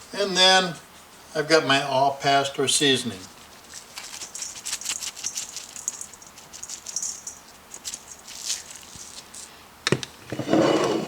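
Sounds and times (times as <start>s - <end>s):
spice shaker swishing: 3.2s - 9.5s.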